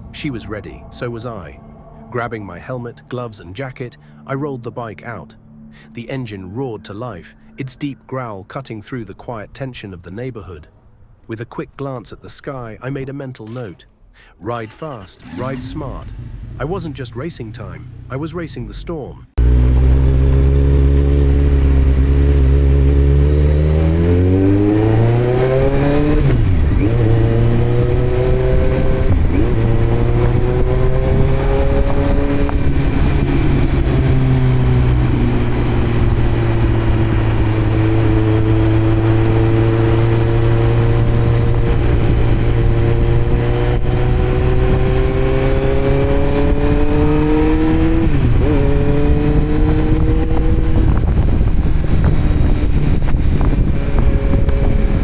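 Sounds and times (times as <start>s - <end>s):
motorcycle engine revving: 15.0s - 18.3s, 19.4s - 55.0s.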